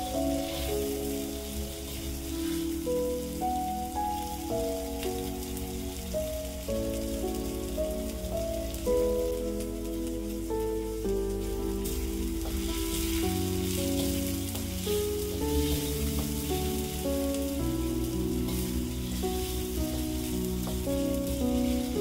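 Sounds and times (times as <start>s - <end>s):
slow background music: 0.0s - 22.0s
spice paste sizzling in a wok: 0.0s - 22.0s.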